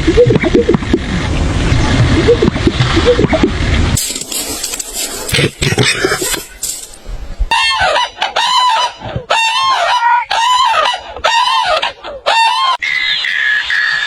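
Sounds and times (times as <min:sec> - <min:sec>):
chicken calling: 0:07.5 - 0:14.0.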